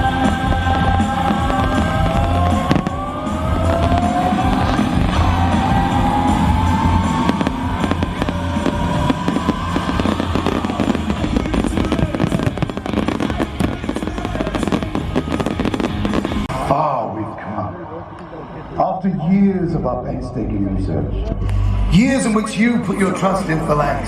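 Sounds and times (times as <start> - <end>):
fireworks bangs and crackles: 0.0 - 16.6
slow rising tone: 0.0 - 16.6
loud show music: 0.0 - 16.8.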